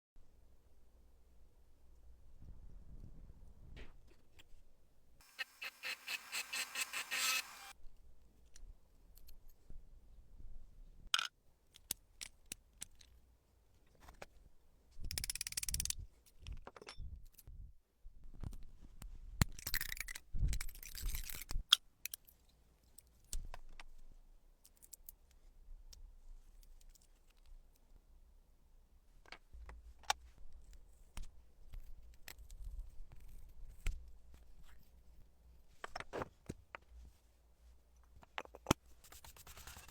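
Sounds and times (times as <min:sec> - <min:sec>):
metal scraping: 0:05.2 - 0:07.7.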